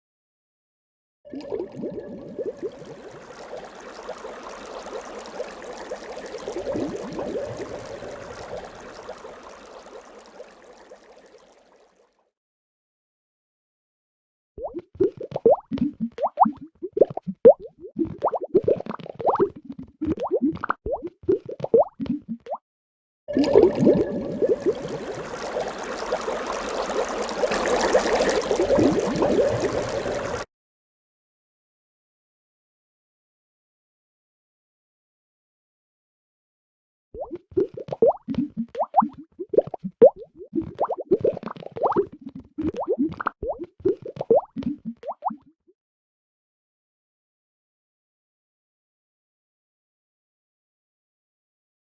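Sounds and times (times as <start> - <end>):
water dripping and trickling: 1.4 - 12.1, 14.6 - 22.6, 23.4 - 30.5, 37.2 - 45.4
water drops plopping: 14.6 - 22.6, 37.2 - 45.5.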